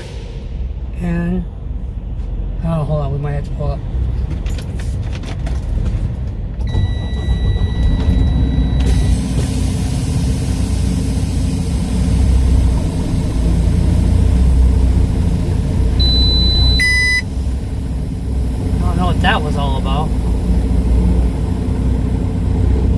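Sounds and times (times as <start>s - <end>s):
truck diesel engine running: 7.0s - 22.9s
steady high tone: 16.0s - 17.4s.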